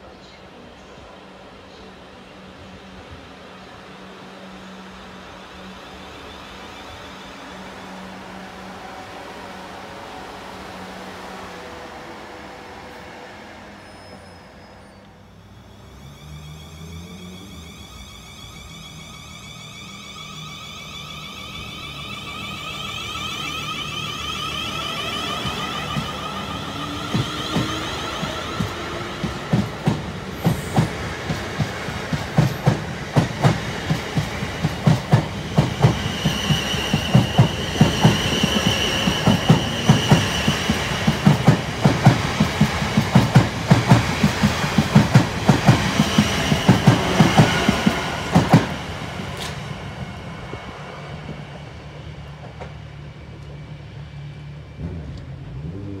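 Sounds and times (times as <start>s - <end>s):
train high whine: 0.0s - 56.0s.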